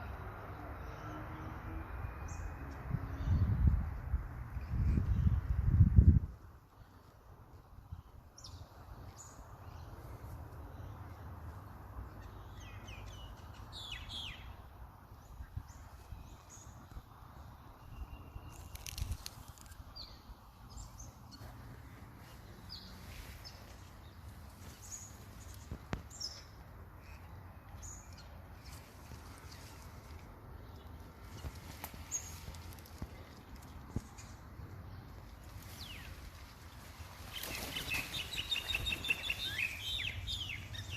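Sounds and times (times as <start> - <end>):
bird chirps: 37.3 - 40.9.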